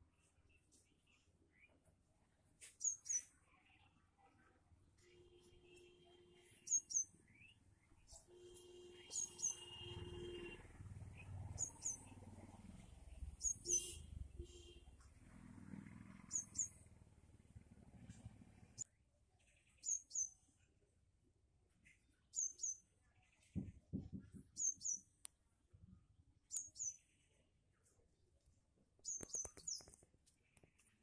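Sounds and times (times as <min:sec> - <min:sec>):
small bird double chirps: 0:06.6 - 0:07.5, 0:09.0 - 0:10.5, 0:11.1 - 0:12.2, 0:13.4 - 0:14.0, 0:16.2 - 0:16.9, 0:19.8 - 0:20.4, 0:24.6 - 0:25.1, 0:29.0 - 0:30.0.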